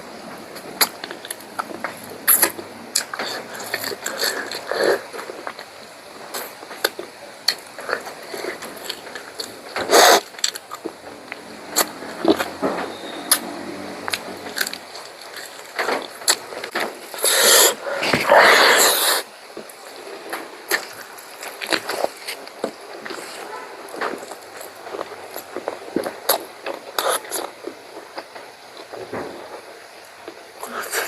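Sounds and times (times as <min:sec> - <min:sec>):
chewing and mouth clicks: 0:00.8 - 0:05.7, 0:23.0 - 0:27.6.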